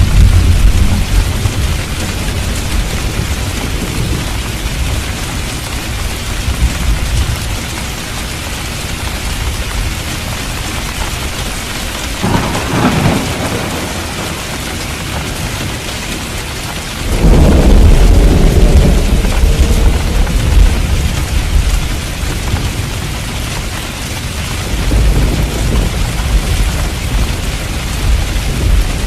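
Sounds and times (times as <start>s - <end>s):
sharp thunderclap: 0.0s - 4.4s, 12.2s - 15.5s, 17.0s - 22.9s, 24.6s - 29.0s
rolling thunder: 0.0s - 7.6s, 12.2s - 15.9s, 17.0s - 23.2s, 24.6s - 29.0s
heavy rain: 0.0s - 29.0s.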